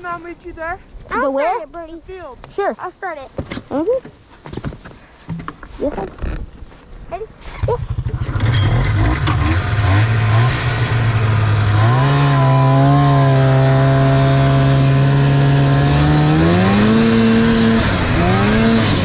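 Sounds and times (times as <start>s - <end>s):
snowmobile engine revving: 7.5s - 19.0s.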